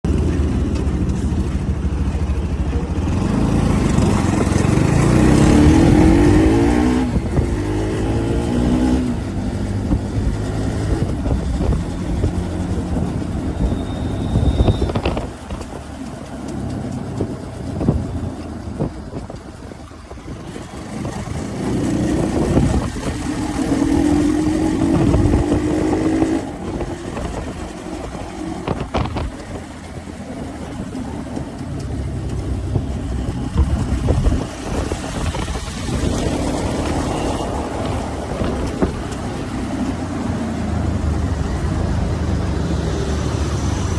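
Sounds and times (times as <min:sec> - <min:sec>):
road noise: 0:00.0 - 0:43.9
motorcycle engine accelerating: 0:00.1 - 0:43.9
brief high tone: 0:13.6 - 0:15.1.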